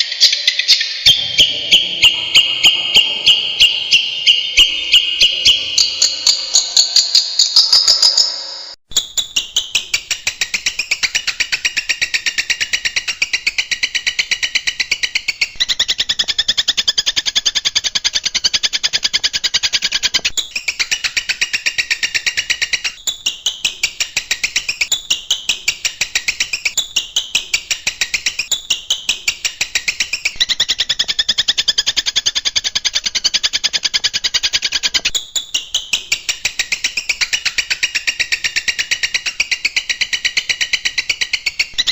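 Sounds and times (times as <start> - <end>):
shrike singing harsh notes: 1.1 - 8.8.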